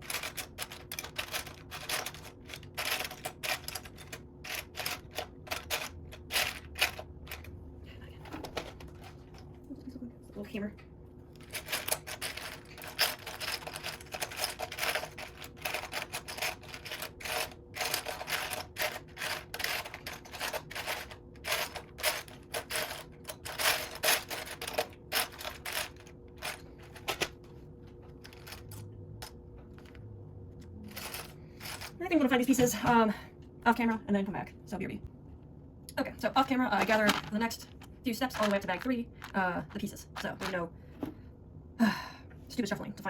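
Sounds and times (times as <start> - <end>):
plastic bricks clattering: 0.0 - 7.5, 11.4 - 27.3, 30.9 - 32.0, 36.8 - 40.6.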